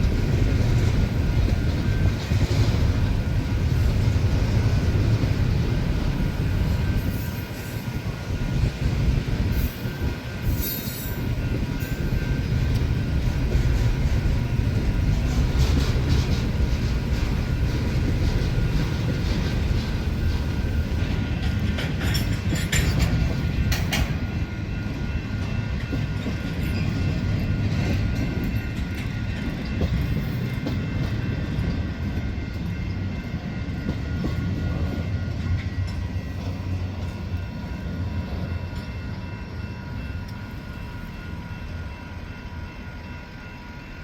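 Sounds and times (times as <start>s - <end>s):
train cars rumbling: 0.0s - 44.0s
wheels clicking over rail joints: 8.5s - 33.0s.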